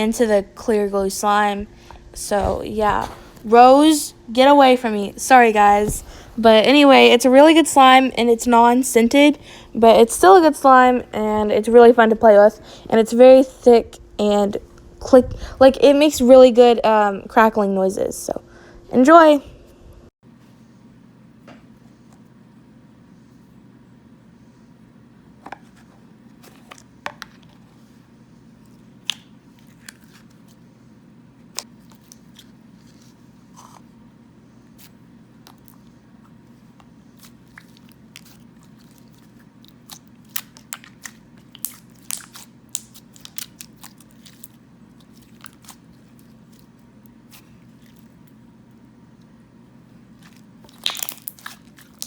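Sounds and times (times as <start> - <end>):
low room hum: 0.0 - 52.0
slime crackling pops and clicks: 50.7 - 51.6.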